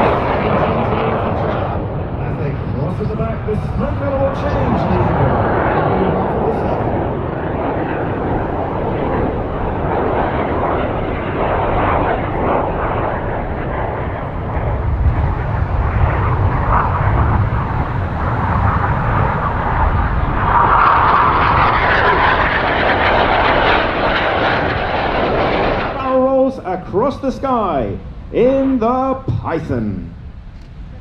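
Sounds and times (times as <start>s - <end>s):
jet aircraft roaring: 0.0s - 31.0s.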